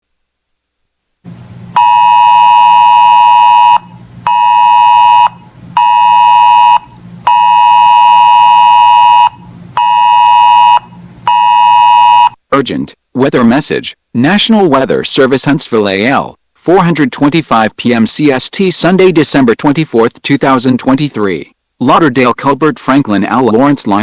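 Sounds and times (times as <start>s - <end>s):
buzzy alert beeps: 1.8s - 12.4s.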